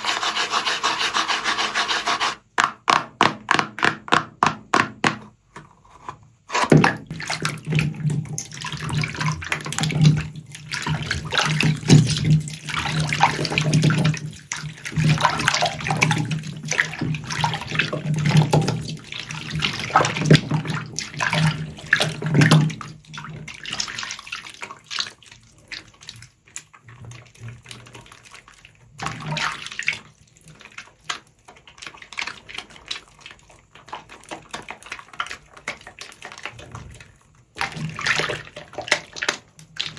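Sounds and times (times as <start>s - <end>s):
soapy sponge squelching in water: 0.0s - 2.5s, 5.8s - 39.9s.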